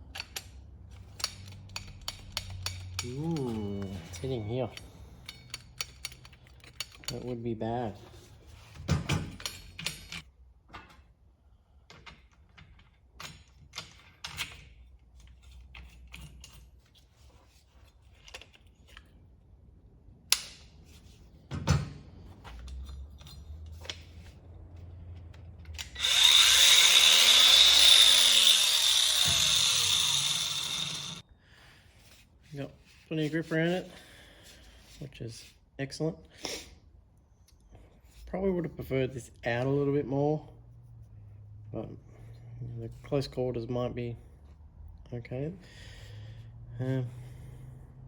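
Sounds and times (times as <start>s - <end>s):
metal parts clicking and knocking: 0.0s - 7.3s, 8.9s - 11.0s, 25.4s - 31.2s
power tool high whine: 25.9s - 31.2s.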